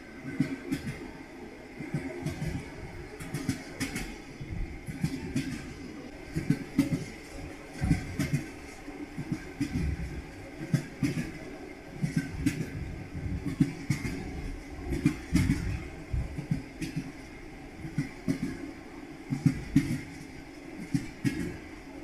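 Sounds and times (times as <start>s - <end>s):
train rumbling: 0.0s - 22.0s
train wheels knocking over rail joints: 1.9s - 11.4s, 12.0s - 18.6s, 19.3s - 21.7s.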